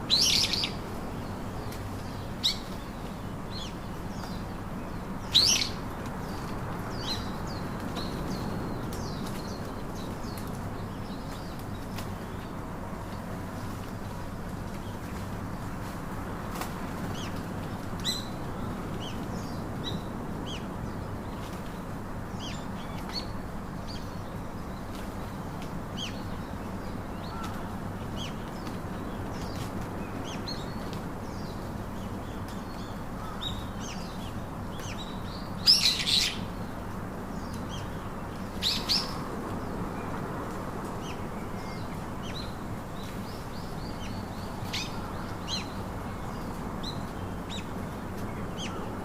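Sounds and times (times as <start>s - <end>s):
low background noise: 0.0s - 49.0s
songbirds chirping: 0.0s - 49.0s.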